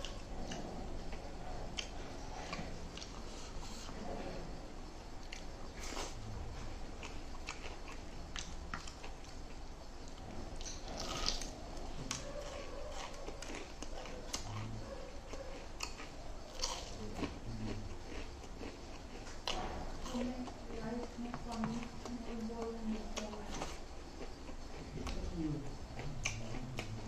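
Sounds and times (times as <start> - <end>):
person chewing food: 0.0 - 27.0
wet mouth clicks: 26.0 - 27.0.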